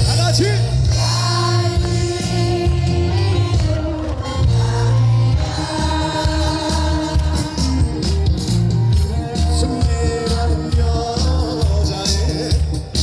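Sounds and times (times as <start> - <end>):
live band playing: 0.0 - 13.0
person singing: 9.1 - 13.0.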